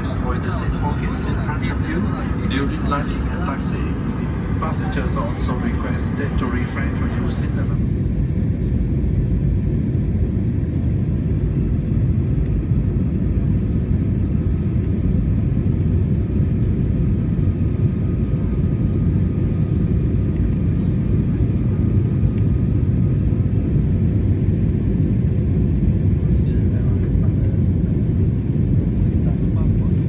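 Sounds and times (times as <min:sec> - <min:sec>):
faint steady hum: 0:00.0 - 0:07.8
engine and airflow rumble: 0:00.0 - 0:07.9.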